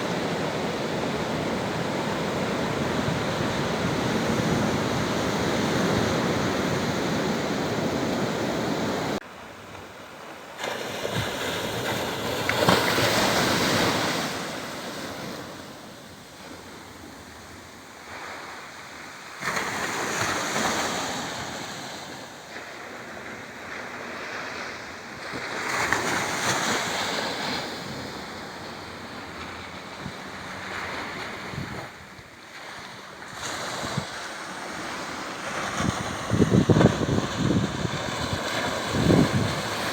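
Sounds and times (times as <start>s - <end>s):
wind noise on microphone: 0.0s - 9.2s, 23.2s - 39.9s
sea waves breaking: 0.0s - 17.2s, 18.0s - 39.9s.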